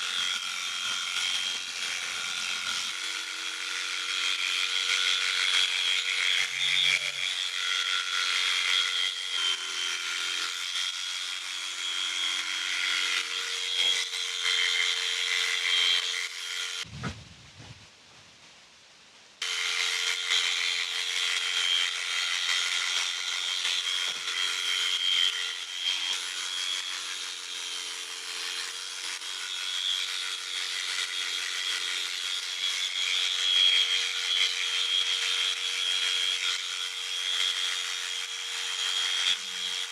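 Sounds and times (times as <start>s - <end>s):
electric clippers buzzing: 0.0s - 16.9s, 19.4s - 39.9s
low thump: 16.9s - 17.8s.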